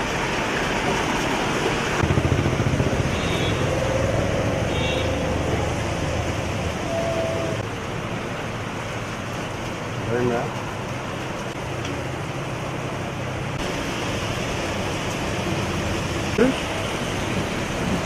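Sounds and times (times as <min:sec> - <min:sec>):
street traffic noise: 0:00.0 - 0:18.0
motor vehicle rumbling past: 0:02.0 - 0:07.6
car horn toots: 0:03.1 - 0:03.7, 0:04.7 - 0:05.2.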